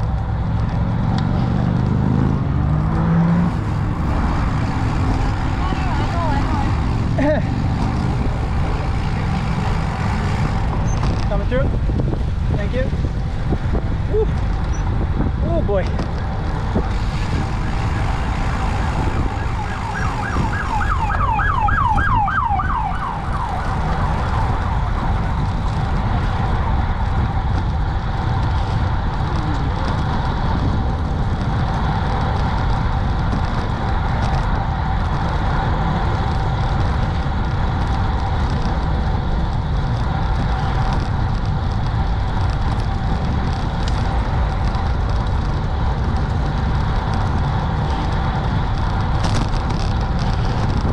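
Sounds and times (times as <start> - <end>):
wind rumbling on microphone: 0.0 - 50.9
siren yelping: 17.5 - 25.0.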